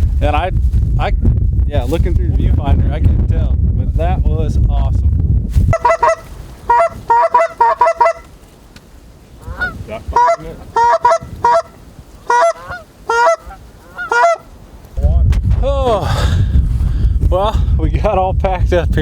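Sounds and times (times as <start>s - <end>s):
geese honking: 5.7s - 8.5s, 9.4s - 14.7s.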